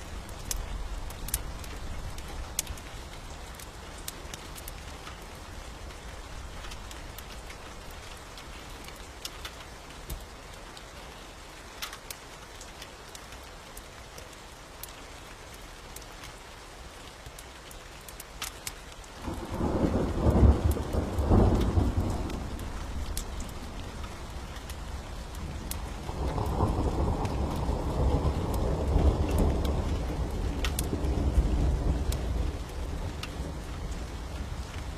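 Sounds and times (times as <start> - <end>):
steady rain: 0.0 - 34.9
sharp crackles: 17.3 - 34.9
thunder rumbling: 19.2 - 34.9.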